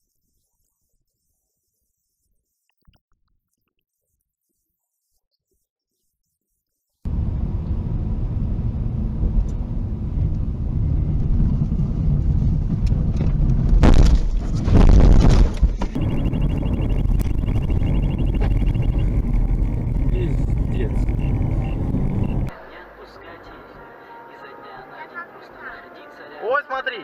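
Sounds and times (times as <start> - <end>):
car engine and road rumble: 7.1 - 22.6
faint pulsing high tone: 16.0 - 23.4.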